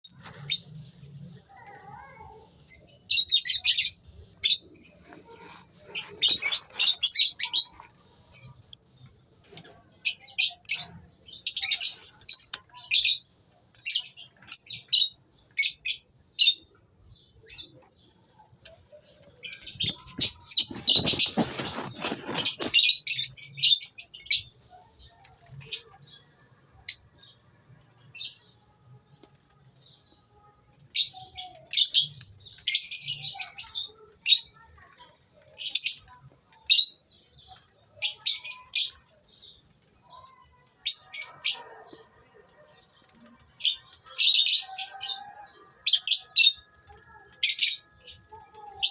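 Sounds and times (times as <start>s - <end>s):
lovebirds chirping: 0.0s - 28.6s
rustling noise: 5.0s - 7.7s, 18.6s - 23.2s.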